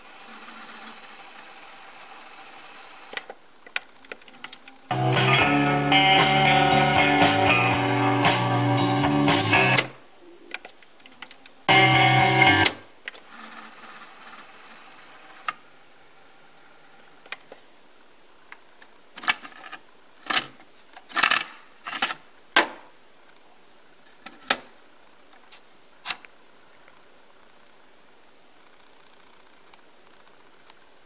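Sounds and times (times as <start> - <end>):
tape winding whir: 0.0 - 5.3.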